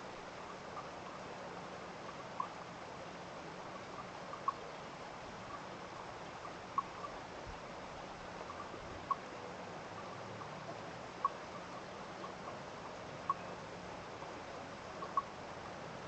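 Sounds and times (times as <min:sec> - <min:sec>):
small animal peeping: 0:03.8 - 0:04.7, 0:05.4 - 0:07.3, 0:08.0 - 0:13.7, 0:14.8 - 0:15.4.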